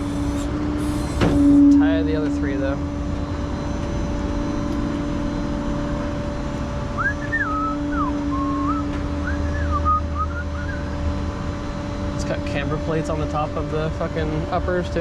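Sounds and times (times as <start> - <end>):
low mechanical drone: 0.0 - 15.0
person whistling a tune: 7.0 - 10.9.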